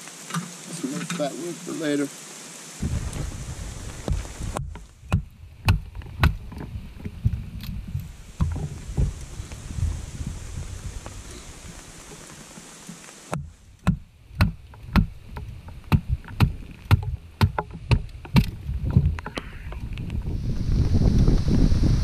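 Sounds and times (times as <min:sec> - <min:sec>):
rain hissing: 0:00.0 - 0:22.0
sharp taps and knocks: 0:04.1 - 0:07.1, 0:12.1 - 0:19.9.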